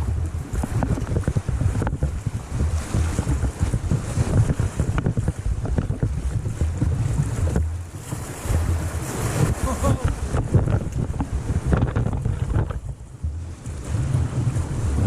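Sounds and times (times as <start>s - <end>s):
wind buffeting microphone: 0.0s - 15.0s
river rapids rushing: 6.2s - 10.4s.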